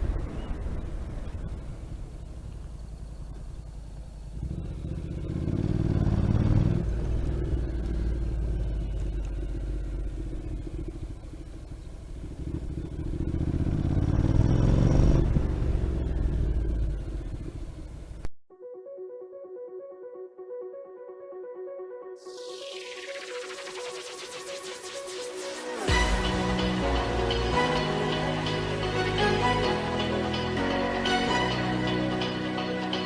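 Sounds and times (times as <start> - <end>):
motorcycle engine accelerating: 0.0 - 18.3.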